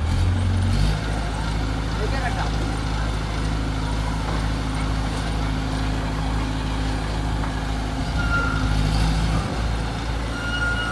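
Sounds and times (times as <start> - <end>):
heavy diesel engine running: 0.0 - 10.9
short high beep: 10.3 - 10.9.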